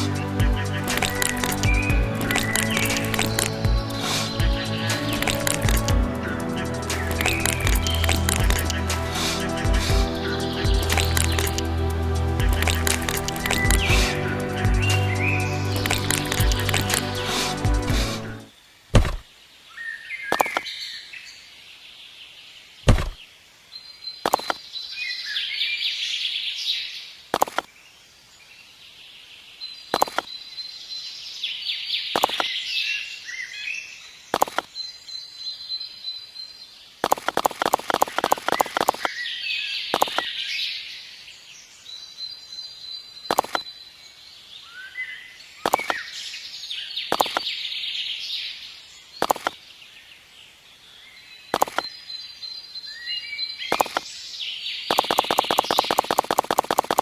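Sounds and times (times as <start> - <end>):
birds chirping and calling: 0.0 - 18.4.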